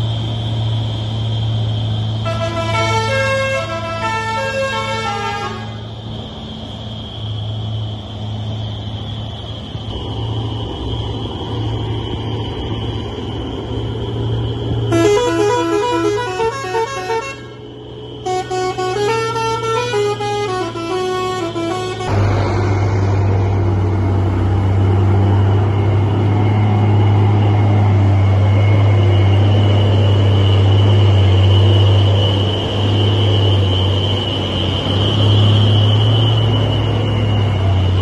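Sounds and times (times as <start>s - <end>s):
truck engine hum: 0.0s - 38.0s
musical truck horn tune: 2.2s - 5.8s, 14.9s - 17.6s, 18.2s - 22.2s.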